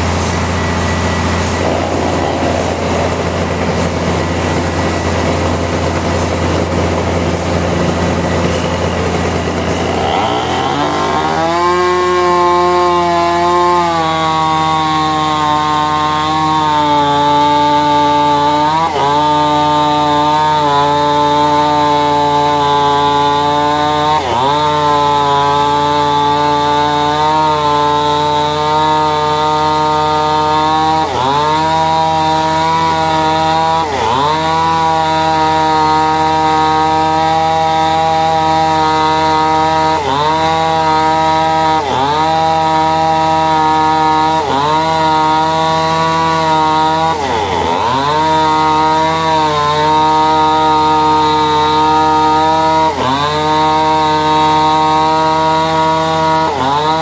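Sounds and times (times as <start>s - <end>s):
powered saw cutting timber: 0.0s - 57.0s.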